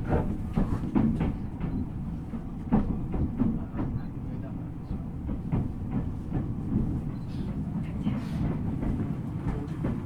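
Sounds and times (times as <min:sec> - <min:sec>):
train low rumble: 0:00.0 - 0:10.0.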